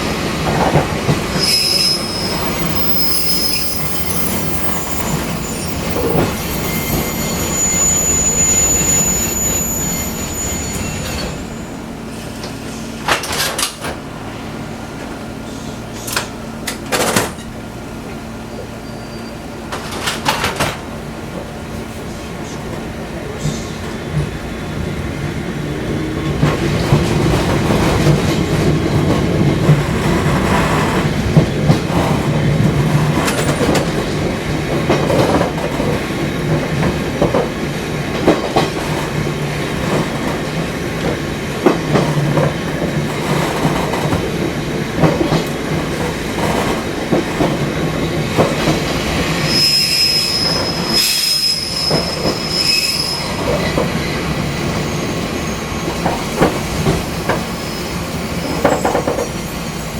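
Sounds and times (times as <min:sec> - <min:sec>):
high wheel squeal: 0:01.4 - 0:12.9, 0:18.8 - 0:19.6, 0:49.1 - 0:53.6, 0:57.4 - 0:59.9.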